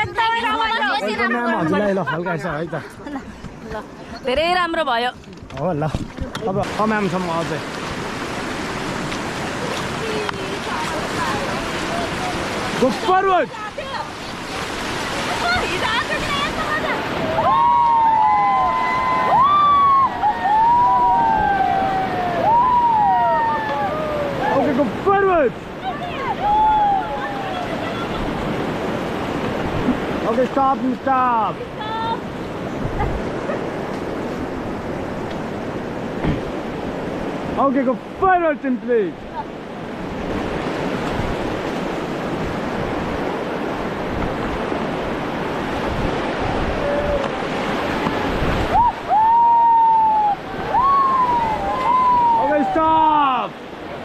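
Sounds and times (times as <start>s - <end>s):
wind buffeting microphone: 3.0s - 30.3s, 31.5s - 38.2s, 39.3s - 54.0s
river water rushing: 5.8s - 54.0s
people whooping: 17.2s - 24.6s, 26.2s - 28.1s, 46.4s - 47.4s, 48.6s - 53.4s.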